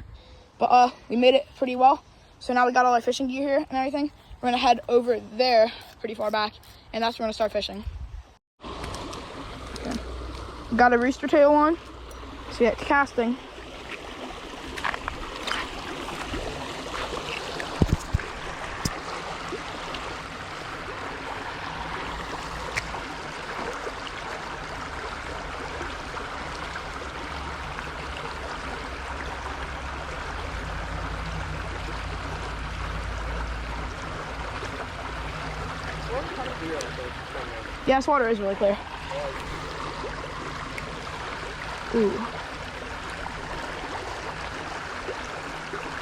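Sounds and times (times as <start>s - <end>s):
wind rumble on microphone: 7.7s - 10.8s
flowing water rushing: 8.6s - 46.0s.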